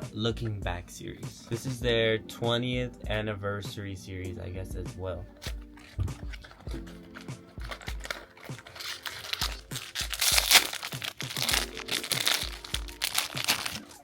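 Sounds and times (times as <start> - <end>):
background music with beat: 0.0 - 14.0
packaging crinkling and tearing: 5.4 - 14.0.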